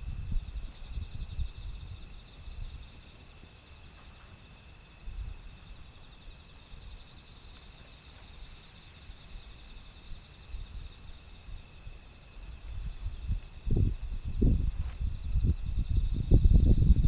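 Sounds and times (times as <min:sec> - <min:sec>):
wind rumble on microphone: 0:00.0 - 0:02.9, 0:05.0 - 0:05.8, 0:10.5 - 0:17.0
insects chirring: 0:00.0 - 0:17.0.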